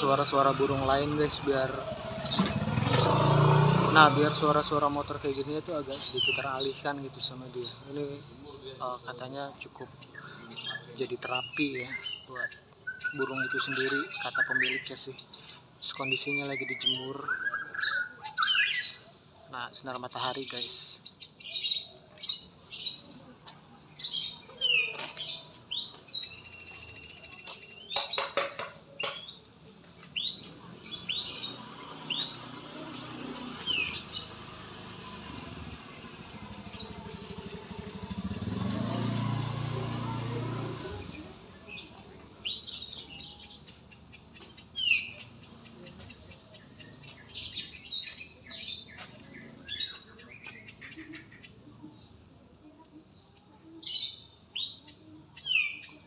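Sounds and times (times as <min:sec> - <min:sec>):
passing vehicle rumble: 0:00.0 - 0:08.5, 0:30.4 - 0:43.2
songbirds chirping and trilling: 0:00.0 - 0:56.0.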